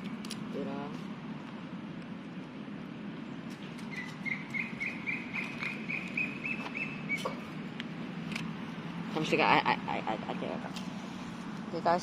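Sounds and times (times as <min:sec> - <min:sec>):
bird chirping rapidly: 0:03.8 - 0:07.4.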